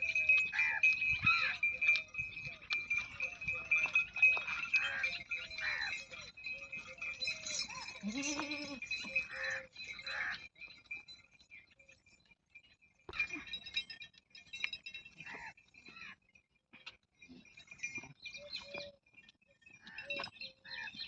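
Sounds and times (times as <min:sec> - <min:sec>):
goats bleating: 0:07.9 - 0:09.5
deep long goat bleat: 0:08.0 - 0:08.8.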